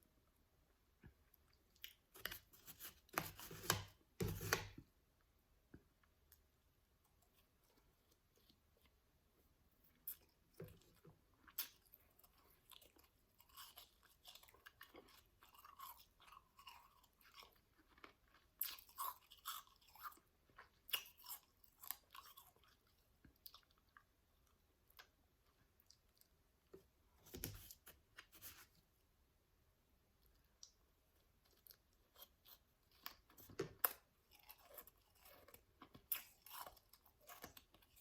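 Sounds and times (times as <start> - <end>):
person chewing ice: 9.9 - 24.1, 31.5 - 38.0.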